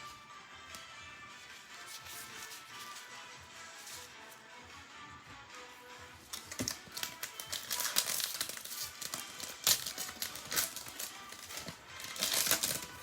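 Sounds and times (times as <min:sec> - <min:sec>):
quiet background music: 0:00.0 - 0:13.0
trading cards rustling: 0:01.8 - 0:03.1, 0:06.3 - 0:13.0.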